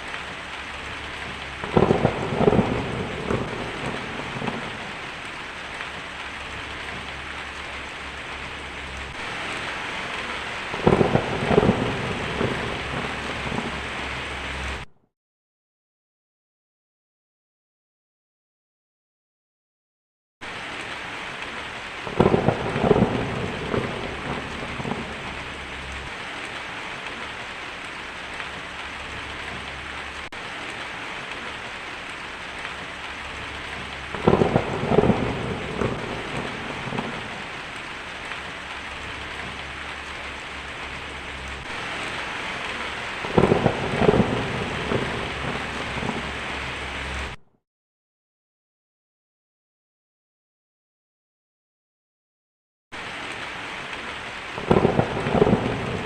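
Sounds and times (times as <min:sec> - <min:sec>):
heavy rain: 0:00.0 - 0:14.9, 0:20.4 - 0:47.4, 0:53.0 - 0:56.0
loud thunder rolls: 0:01.0 - 0:05.0, 0:09.2 - 0:14.9, 0:22.0 - 0:26.1, 0:32.8 - 0:37.9, 0:39.0 - 0:47.4, 0:54.6 - 0:56.0.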